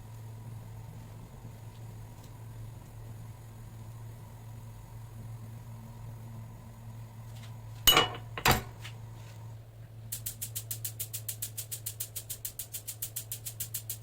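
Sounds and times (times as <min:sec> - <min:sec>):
steady low hum: 0:00.0 - 0:14.0
hard objects knocking: 0:07.9 - 0:08.8
fast even ticking: 0:10.2 - 0:14.0.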